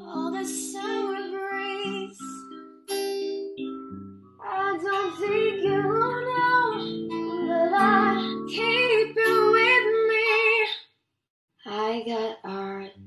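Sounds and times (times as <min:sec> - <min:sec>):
woman singing with vibrato: 0:00.0 - 0:02.4, 0:04.4 - 0:10.8, 0:11.7 - 0:13.0
plucked acoustic guitar: 0:00.0 - 0:10.7.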